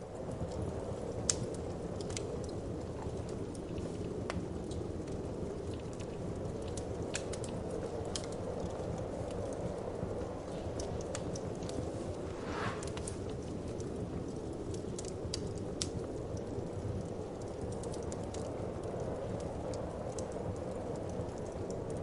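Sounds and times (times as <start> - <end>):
wood fire crackling: 0.0 - 22.0
low whoosh of wind: 11.4 - 14.5.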